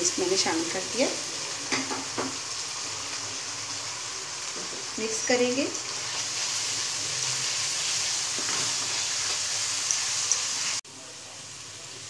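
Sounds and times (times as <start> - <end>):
meat and onions sizzling in oil: 0.0 - 12.0
spatula stirring in pan: 5.9 - 10.8.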